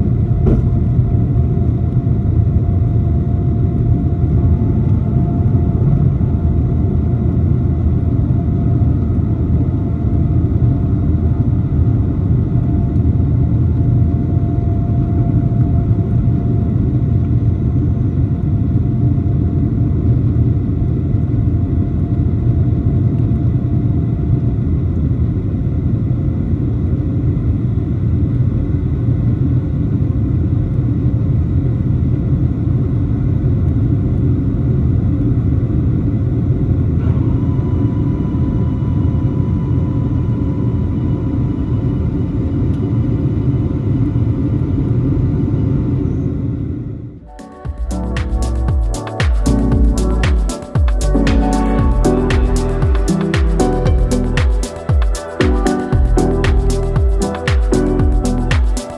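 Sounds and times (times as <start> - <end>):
aircraft cabin rumble: 0.0 - 9.4
faint steady tones: 47.2 - 58.9.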